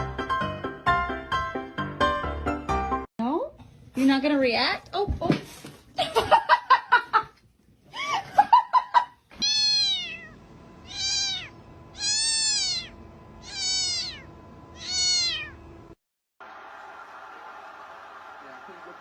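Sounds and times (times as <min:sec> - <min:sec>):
cat meowing: 0:09.4 - 0:15.6.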